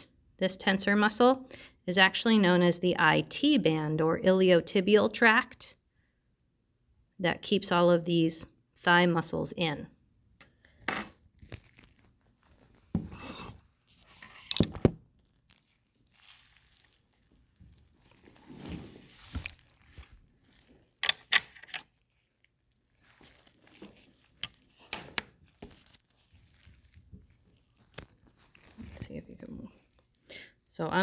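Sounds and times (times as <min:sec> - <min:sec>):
sharp clicks and scrapes: 0:13.0 - 0:14.9, 0:21.0 - 0:21.9.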